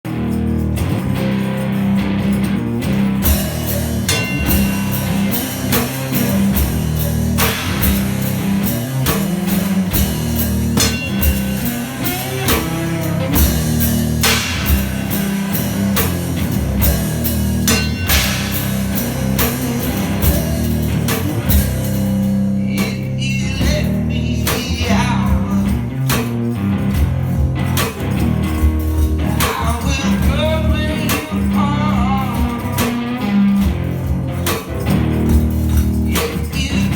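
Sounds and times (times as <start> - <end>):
guitar: 0.0 - 36.9
kick drum and cymbal beat: 3.0 - 36.9
person singing: 11.6 - 13.8, 16.7 - 21.8, 22.5 - 26.0, 29.2 - 33.7, 36.1 - 36.9.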